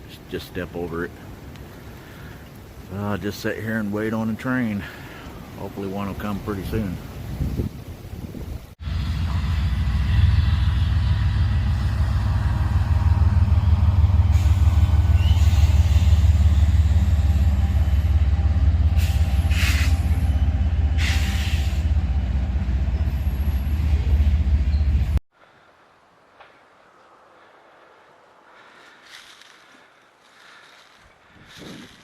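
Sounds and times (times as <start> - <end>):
diesel locomotive rumbling: 8.8 - 25.2
air hiss bursts: 19.0 - 20.2, 21.0 - 21.9.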